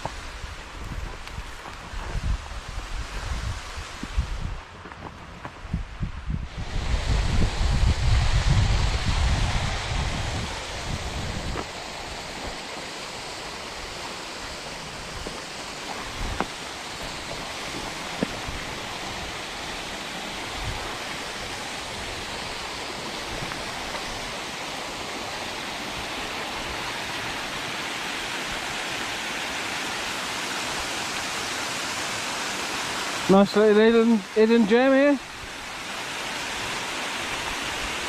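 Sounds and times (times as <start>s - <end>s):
low wind rumble: 0.0s - 27.6s
waterfall rushing: 6.5s - 38.0s.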